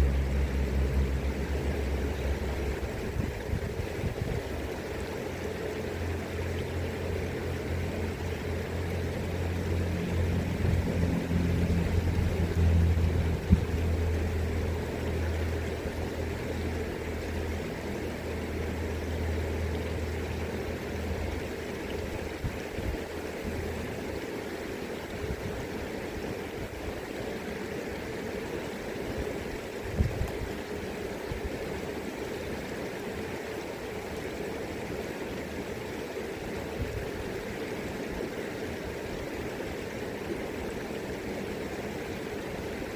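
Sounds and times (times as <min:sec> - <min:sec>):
motor engine passing by: 0:00.0 - 0:03.8, 0:04.9 - 0:21.6
river water flowing: 0:00.0 - 0:42.9.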